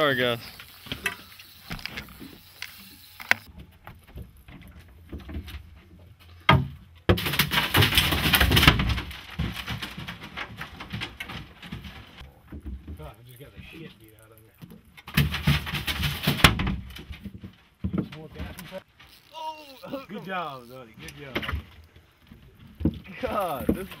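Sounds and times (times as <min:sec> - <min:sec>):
camera knocking and clattering: 0:00.6 - 0:03.5.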